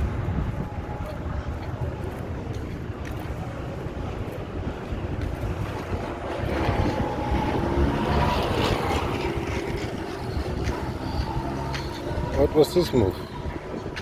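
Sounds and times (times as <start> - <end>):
street traffic: 0.0 - 14.0
wind rumbling on microphone: 0.0 - 14.0
motor vehicle passing: 3.2 - 14.0.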